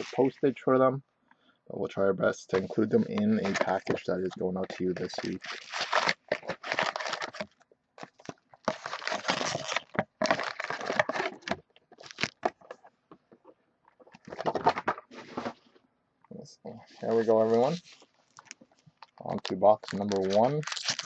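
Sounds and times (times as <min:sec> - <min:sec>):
card packaging crinkling and tearing: 0:02.5 - 0:12.8, 0:17.0 - 0:21.0.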